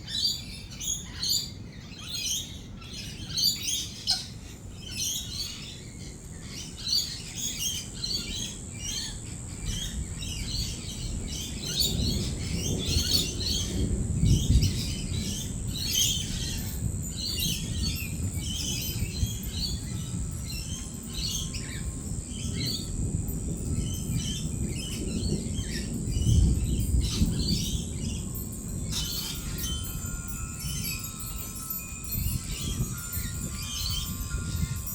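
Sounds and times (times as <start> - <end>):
lorikeets chattering: 6.6 - 34.9
rolling thunder: 9.7 - 20.6, 21.5 - 31.0.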